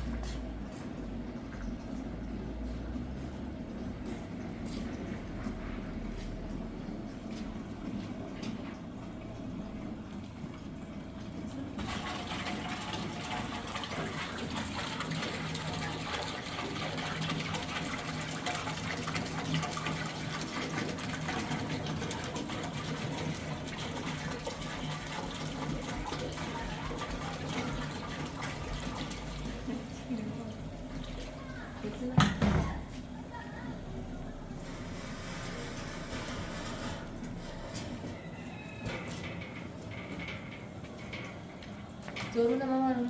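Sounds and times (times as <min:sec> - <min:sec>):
water running from a tap: 0:08.3 - 0:36.4.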